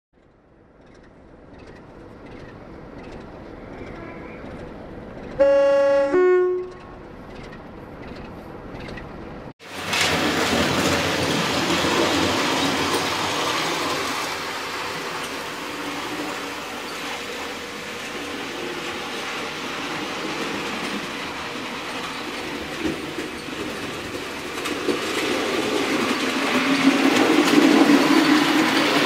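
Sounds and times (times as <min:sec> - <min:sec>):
train rumble: 0:00.2 - 0:29.0
train horn blast: 0:05.4 - 0:06.9.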